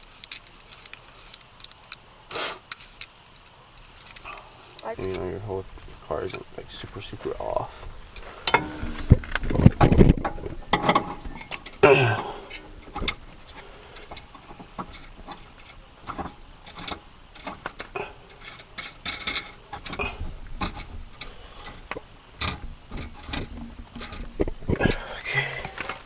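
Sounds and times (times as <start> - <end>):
metal tools clicking and tapping: 8.2 - 9.6, 10.2 - 11.8, 14.0 - 25.0
metal clatter: 8.4 - 11.8, 12.5 - 26.0.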